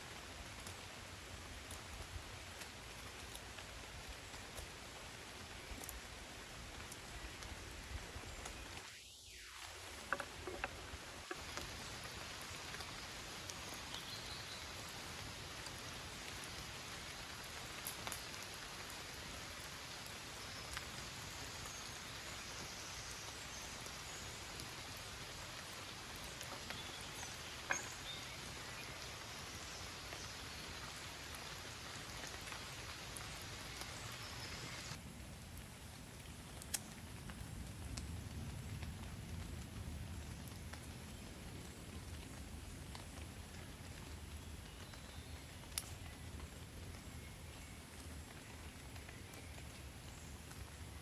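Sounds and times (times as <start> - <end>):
steady rain falling: 0.0 - 51.0
sharp water drips: 8.4 - 35.0.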